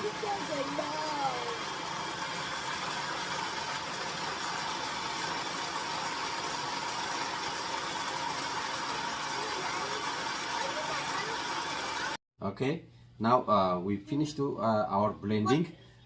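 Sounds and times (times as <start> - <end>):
electric blender running: 0.0 - 12.2.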